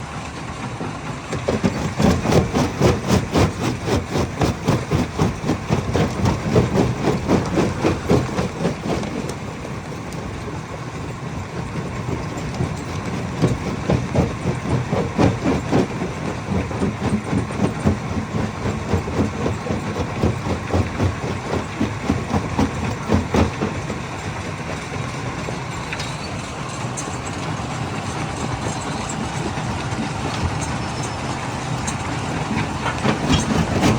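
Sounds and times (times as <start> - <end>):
machine hum: 1.4 - 33.9
crusher knocking rock: 32.7 - 33.9.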